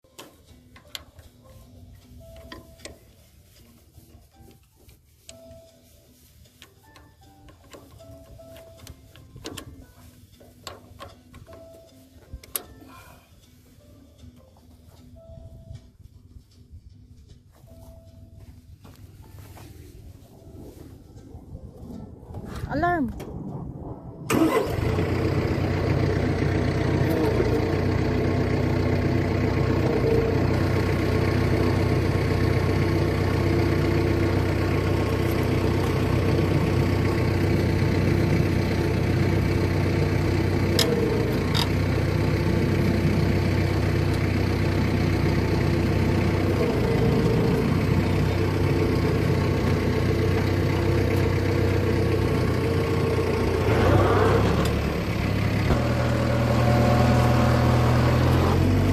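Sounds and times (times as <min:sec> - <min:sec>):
tractor diesel engine idling: 0:24.3 - 0:58.9.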